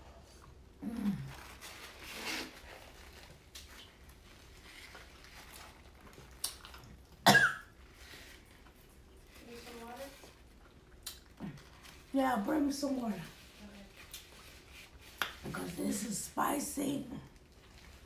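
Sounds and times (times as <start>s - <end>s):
woman clearing her throat: 7.2s - 7.6s
woman coughing: 7.2s - 7.7s.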